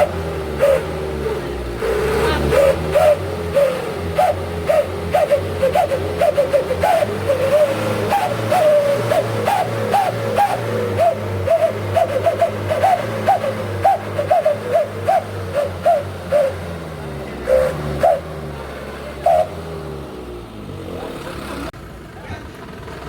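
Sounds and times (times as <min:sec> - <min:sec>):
truck engine running: 0:00.0 - 0:23.0
whistle exhaust howling chirps: 0:02.6 - 0:16.6.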